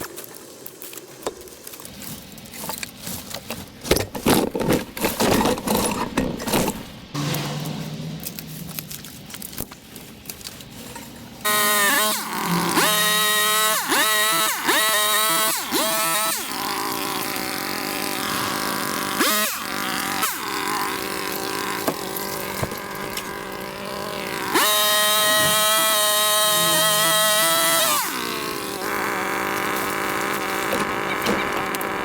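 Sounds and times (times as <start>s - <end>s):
scraper scraping and knocking on roof: 3.0s - 8.0s, 25.3s - 25.8s.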